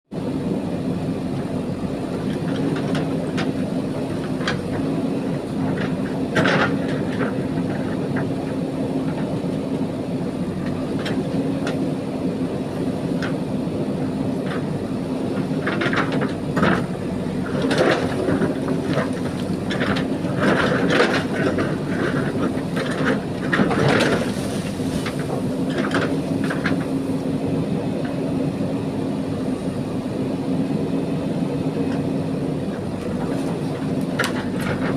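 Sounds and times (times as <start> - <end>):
diesel engine running under load: 0.1 - 34.9
bucket scraping and clattering gravel: 23.6 - 25.4.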